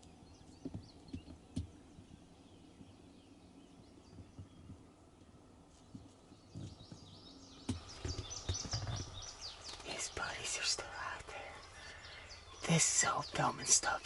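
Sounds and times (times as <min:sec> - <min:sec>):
faint bird chirps: 0:00.0 - 0:14.0
soft low thumps: 0:05.8 - 0:10.3.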